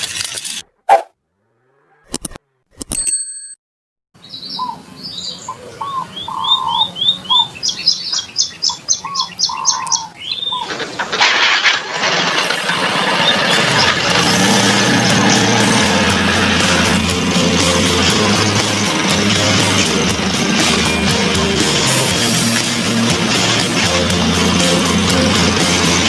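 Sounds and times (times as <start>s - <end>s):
birds chirping and whistling: 4.2s - 11.0s, 12.7s - 17.0s.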